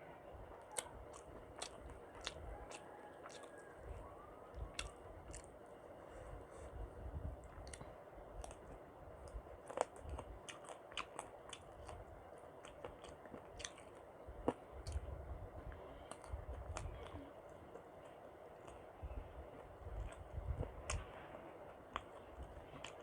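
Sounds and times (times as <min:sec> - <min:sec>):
close chewing with mouth smacks: 0:00.4 - 0:23.0
sharp mouth clicks: 0:04.6 - 0:05.5.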